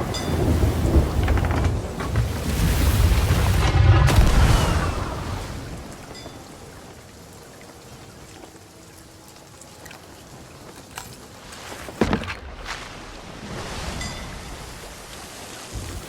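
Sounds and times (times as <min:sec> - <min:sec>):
thunder rumbling and cracking: 0:00.0 - 0:06.2.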